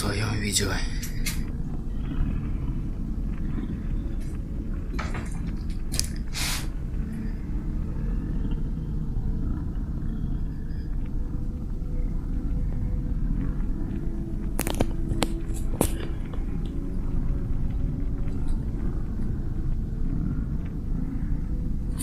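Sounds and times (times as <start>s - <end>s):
low rumble: 0.0s - 22.0s
rustling hisses: 5.9s - 8.7s.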